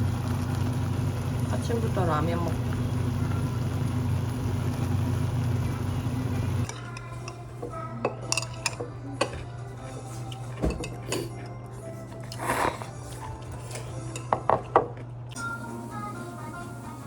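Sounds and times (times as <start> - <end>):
cutlery clinking on dishes: 8.2 - 9.5, 10.3 - 11.5.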